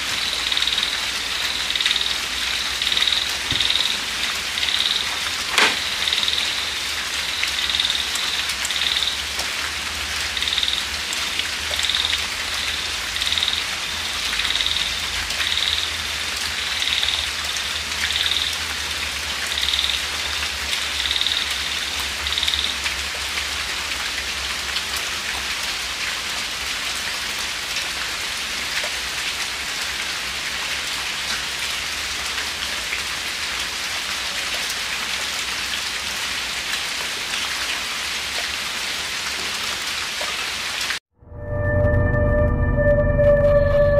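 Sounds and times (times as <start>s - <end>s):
light rain falling: 0.0s - 41.0s
high-pitched call: 41.2s - 43.9s.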